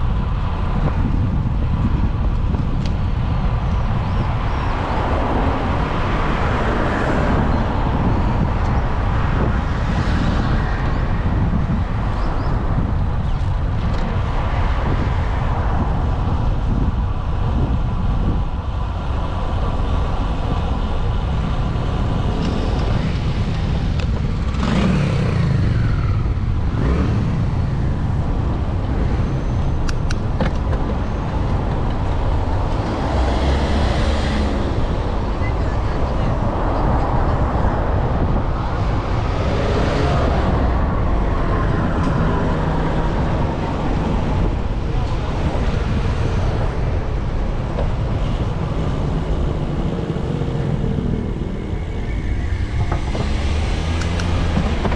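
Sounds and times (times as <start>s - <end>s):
street traffic rumble: 0.0s - 54.9s
vehicle passing close: 37.3s - 54.9s.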